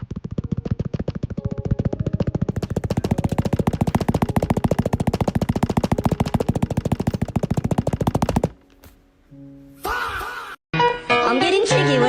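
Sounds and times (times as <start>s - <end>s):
rapid sharp hits: 2.5s - 8.6s.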